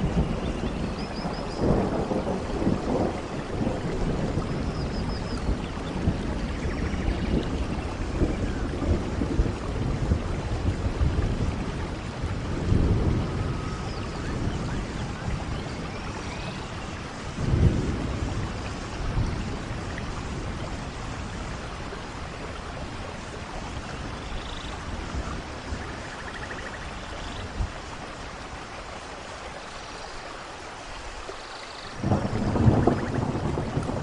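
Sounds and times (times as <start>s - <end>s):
rolling thunder: 0.0s - 26.9s, 32.0s - 34.0s
steady rain: 0.0s - 34.0s.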